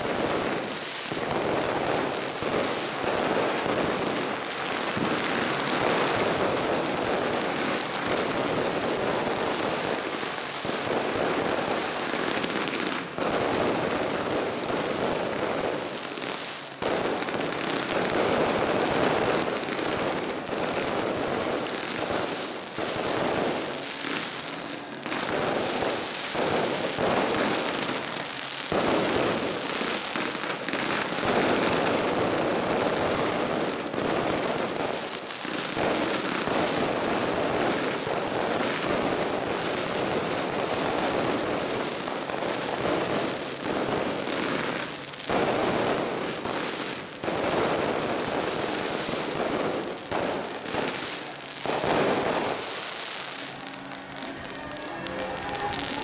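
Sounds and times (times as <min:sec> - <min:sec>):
fireworks crackling and hissing: 0:00.0 - 0:56.0.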